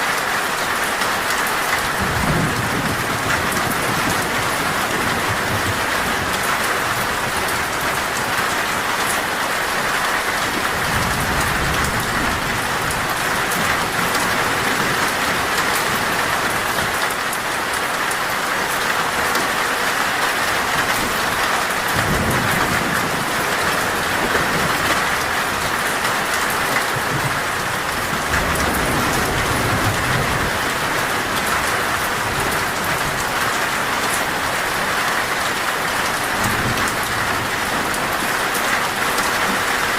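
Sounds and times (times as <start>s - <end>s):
rain drumming on a metal roof: 0.0s - 39.9s
thunder rumbling: 1.8s - 17.0s, 20.9s - 39.7s.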